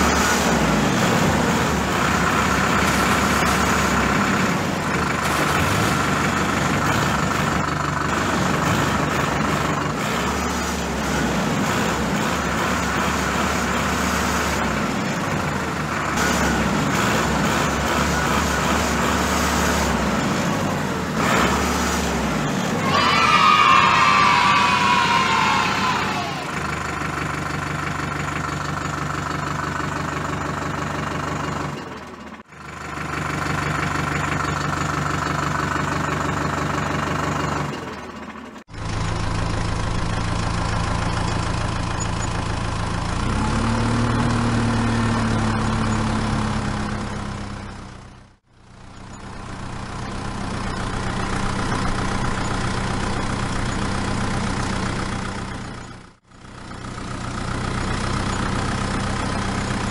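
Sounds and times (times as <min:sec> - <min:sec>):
engine revving: 0:00.0 - 0:28.4, 0:38.6 - 0:48.4
engine idling: 0:00.0 - 0:59.9.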